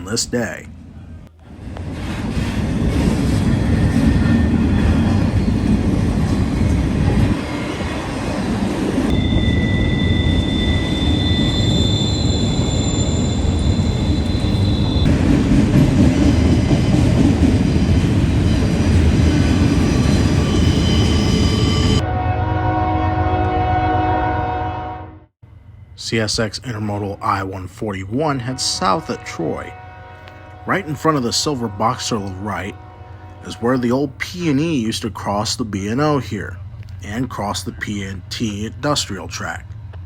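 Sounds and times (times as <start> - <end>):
freight train rumbling: 0.0 - 24.0, 25.4 - 40.0
high-pitched wheel squeals: 9.1 - 15.1, 19.8 - 22.0
locomotive horn: 21.8 - 25.3, 28.2 - 34.6.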